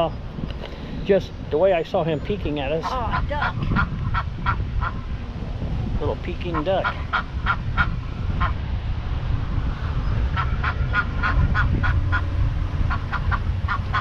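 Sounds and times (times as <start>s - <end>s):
duck quacking: 12.9s - 14.0s.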